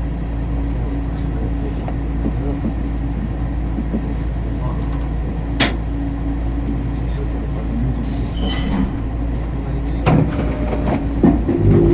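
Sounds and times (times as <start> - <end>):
track car rumble: 0.0 - 11.9
brief high squeal: 8.3 - 8.9.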